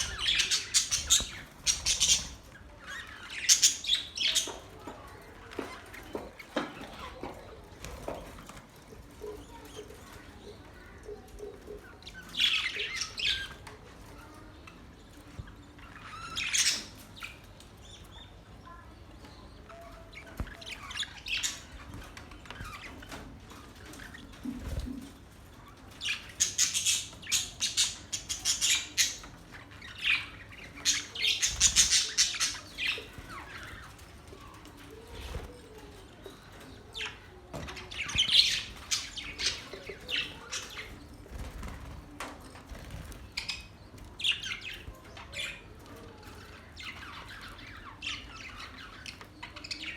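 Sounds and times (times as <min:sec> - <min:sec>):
budgerigars chirping: 0:00.0 - 0:04.6.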